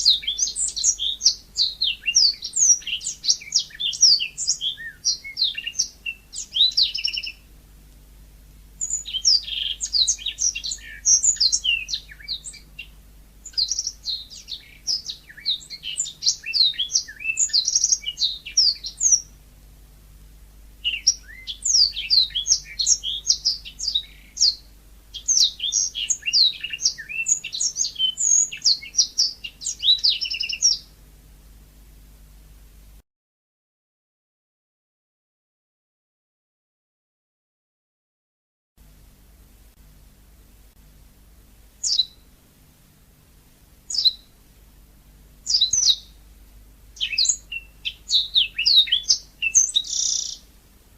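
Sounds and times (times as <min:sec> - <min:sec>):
canary singing: 0:00.0 - 0:07.5, 0:08.8 - 0:19.4, 0:20.8 - 0:30.9, 0:41.8 - 0:42.3, 0:43.9 - 0:44.4, 0:45.4 - 0:46.2, 0:47.0 - 0:50.5.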